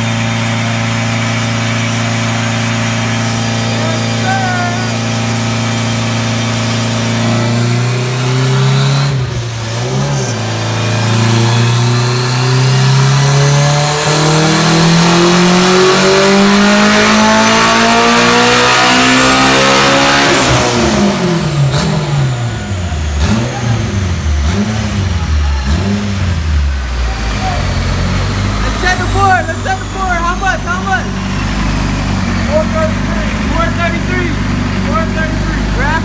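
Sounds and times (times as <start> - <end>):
car engine revving at full throttle: 0.0 - 36.0.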